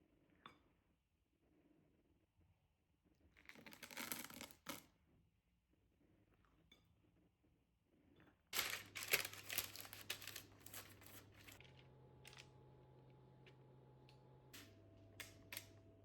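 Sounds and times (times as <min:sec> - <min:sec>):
packaging crinkling: 0:08.6 - 0:12.4.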